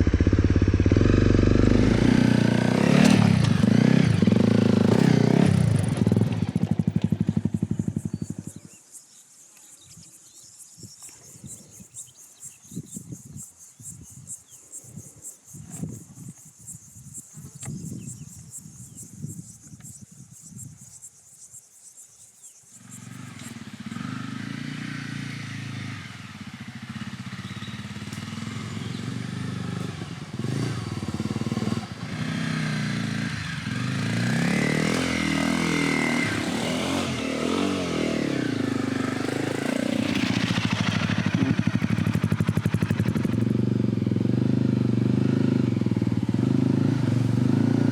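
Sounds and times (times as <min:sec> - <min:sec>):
motorcycle engine: 0:00.0 - 0:08.7, 0:22.8 - 0:47.9.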